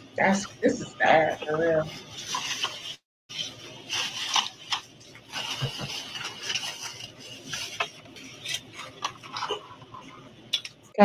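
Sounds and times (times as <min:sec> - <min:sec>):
packaging rustling: 0:02.2 - 0:10.2.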